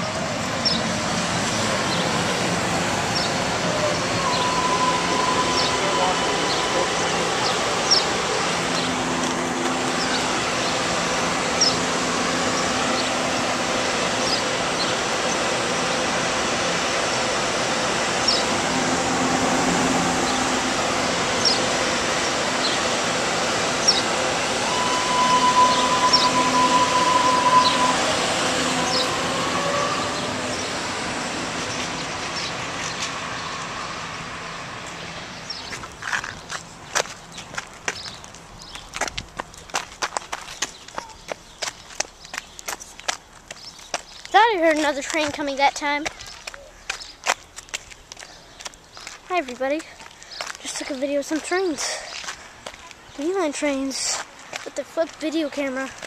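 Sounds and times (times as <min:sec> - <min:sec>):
steady high tone: 0:00.0 - 0:34.2
light-rail train rumble: 0:00.0 - 0:56.0
short high chirps: 0:24.7 - 0:28.1.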